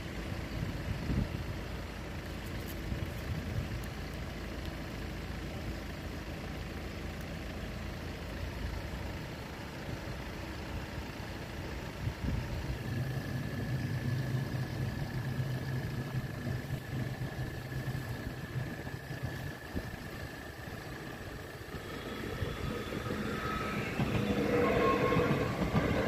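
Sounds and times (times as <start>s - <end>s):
low engine hum: 0.0s - 26.0s
vehicle engine idling: 0.0s - 26.0s
thin high whine: 12.8s - 26.0s.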